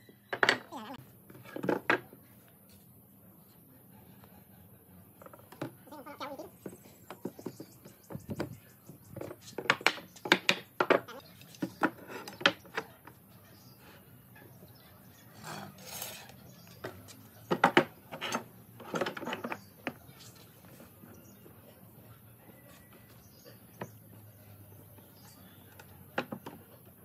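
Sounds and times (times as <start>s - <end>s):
wooden pieces knocking together: 0.3s - 0.8s, 9.2s - 12.9s, 16.8s - 20.0s.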